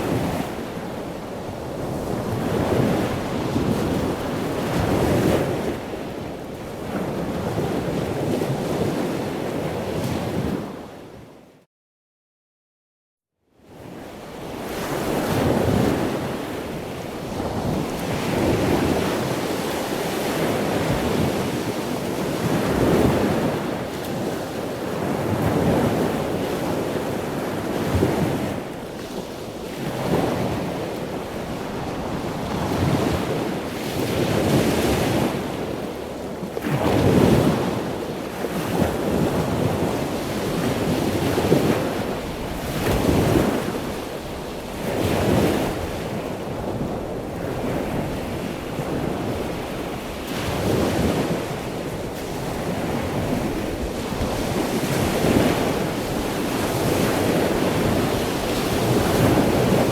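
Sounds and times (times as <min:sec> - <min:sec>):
ocean waves breaking: 0:14.5 - 0:59.9.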